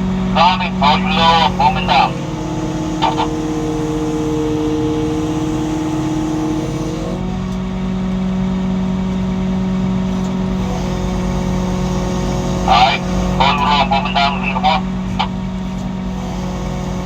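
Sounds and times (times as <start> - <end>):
crane engine and hydraulics whine: 0.0 - 17.0.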